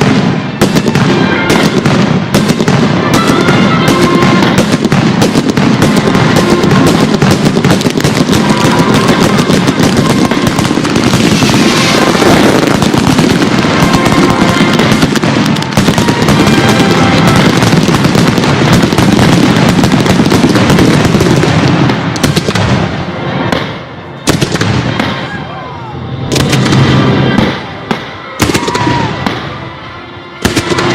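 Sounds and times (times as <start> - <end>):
fireworks bangs and crackles: 0.0 - 30.9.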